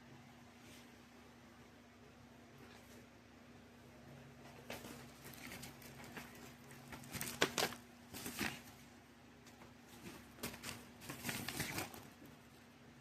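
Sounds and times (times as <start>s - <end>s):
faint steady hum: 0.0s - 13.0s
record sleeve rustling: 4.7s - 8.8s, 9.9s - 12.2s.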